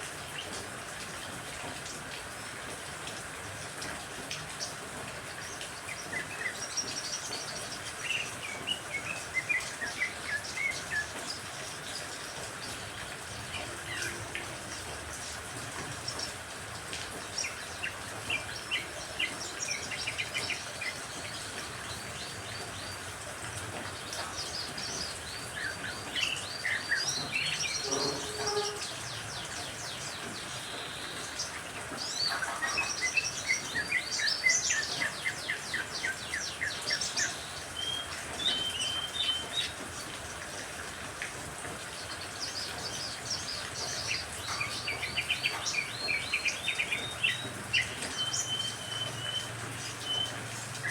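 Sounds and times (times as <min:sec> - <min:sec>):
rain hiss: 0:00.0 - 0:50.9
songbirds chirping and singing: 0:23.8 - 0:39.8, 0:41.9 - 0:50.9.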